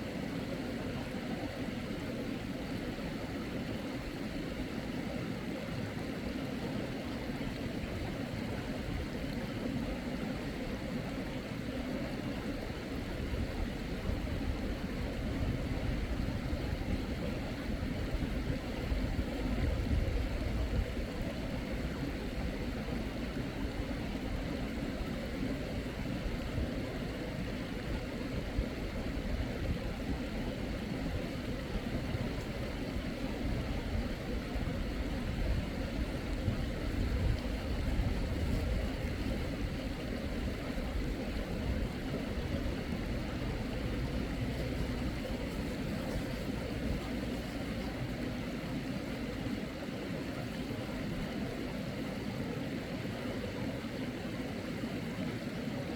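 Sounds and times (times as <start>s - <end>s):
stream water rushing: 0.0s - 55.9s.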